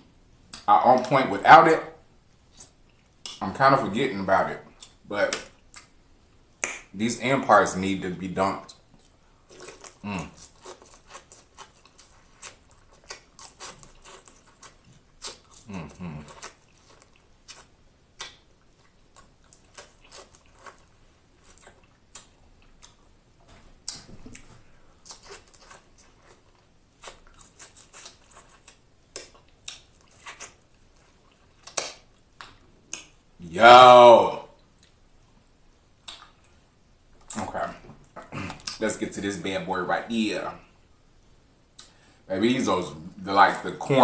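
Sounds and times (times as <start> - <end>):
chewing and wet lip-smacking: 2.5 - 3.5, 4.6 - 6.0, 8.6 - 23.2, 23.8 - 33.2, 36.0 - 36.6
person humming mm: 10.0 - 10.4, 15.6 - 16.4.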